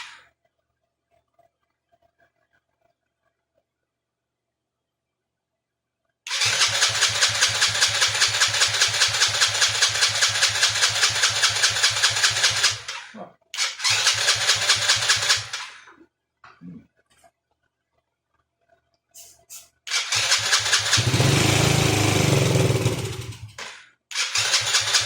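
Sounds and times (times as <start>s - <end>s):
electric starter cranking engine: 6.3s - 15.9s, 19.9s - 25.0s.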